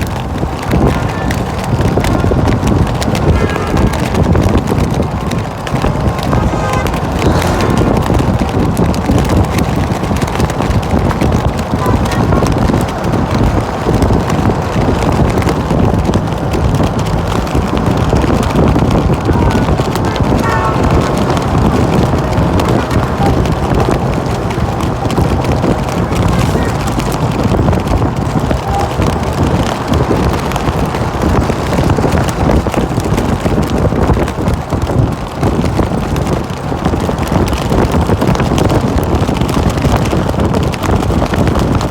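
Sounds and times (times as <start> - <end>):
vehicles driving past: 0.0 - 41.9
wind buffeting microphone: 0.0 - 41.9.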